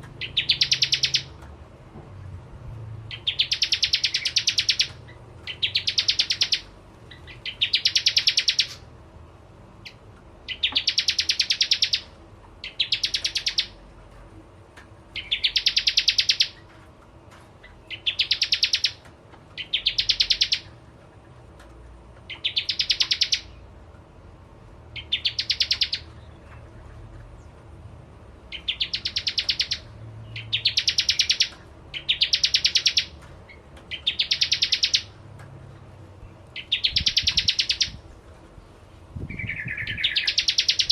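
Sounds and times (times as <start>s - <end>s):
bird singing rattling trills: 0.0s - 1.4s, 3.1s - 8.9s, 9.8s - 13.8s, 15.1s - 16.8s, 17.6s - 20.8s, 22.3s - 23.7s, 25.0s - 27.5s, 28.5s - 35.2s, 36.2s - 38.0s, 39.2s - 40.9s.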